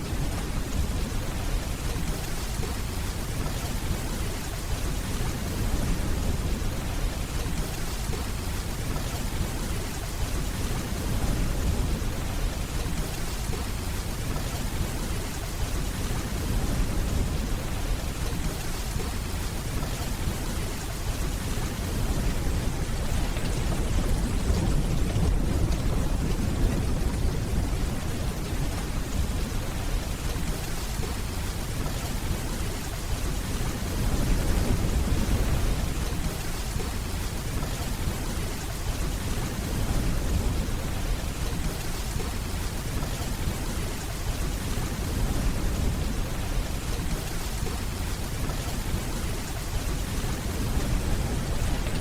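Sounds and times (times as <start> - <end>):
rainfall: 0.0 - 52.0
distant thunder rumbling: 21.1 - 31.2.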